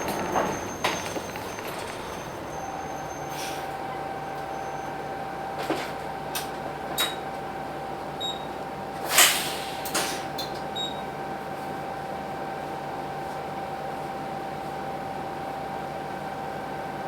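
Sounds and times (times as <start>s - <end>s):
diesel bus engine idling: 0.0s - 6.9s.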